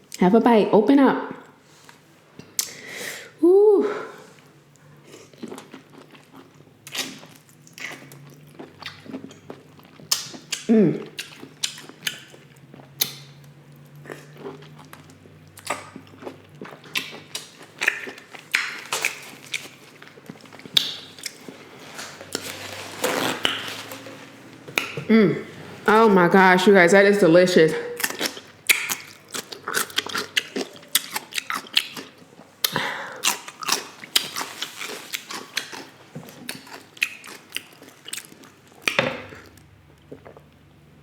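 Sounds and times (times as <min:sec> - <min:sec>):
lip smacks: 0:02.4 - 0:02.8, 0:16.9 - 0:19.7, 0:20.6 - 0:21.4
close chewing with wet clicks: 0:05.1 - 0:21.5, 0:28.0 - 0:40.5.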